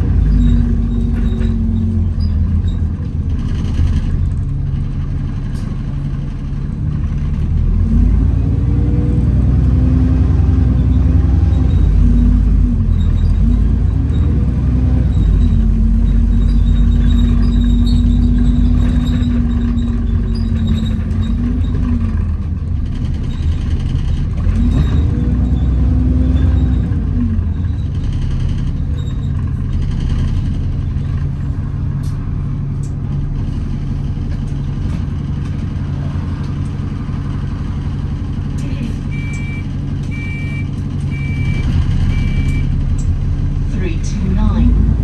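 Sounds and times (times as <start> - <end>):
bus engine rumble: 0.0 - 45.0
drivetrain whine: 0.0 - 45.0
short high beeps: 39.1 - 42.8.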